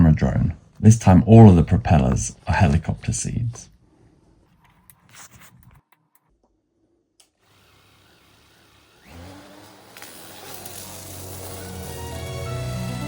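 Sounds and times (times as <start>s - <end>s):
drone motors humming: 7.5s - 13.0s.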